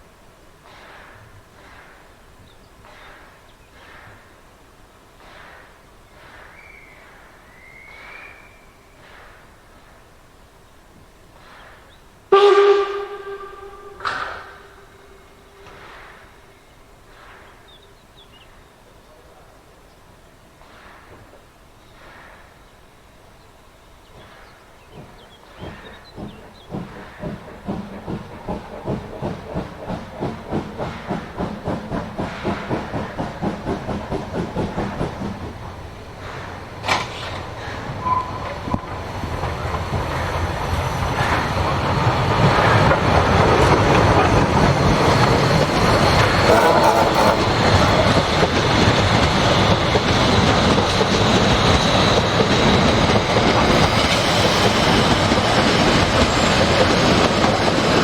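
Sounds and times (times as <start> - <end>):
train approaching: 0.0 - 58.0
rumble and rattle of wheels: 38.7 - 58.0.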